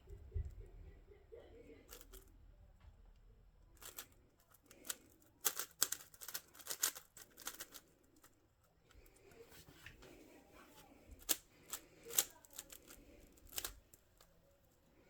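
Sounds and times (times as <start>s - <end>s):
puzzle cube clicking: 1.9s - 2.2s, 3.8s - 8.3s, 11.2s - 14.3s.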